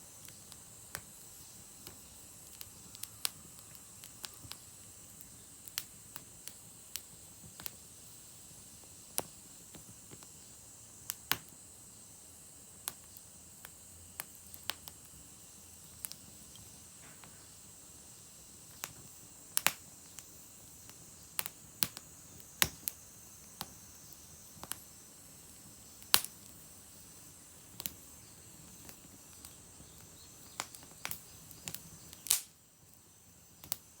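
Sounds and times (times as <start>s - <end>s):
soft steady hiss: 0.0s - 34.0s
wood fire crackling: 0.0s - 34.0s
firewood popping and snapping: 18.7s - 23.8s, 26.0s - 26.6s, 28.7s - 32.6s.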